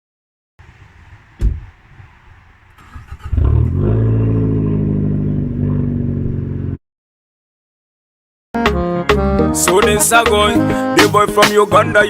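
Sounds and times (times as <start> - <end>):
car door thudding shut: 0.6 - 2.4
car engine starting and running: 0.6 - 6.8.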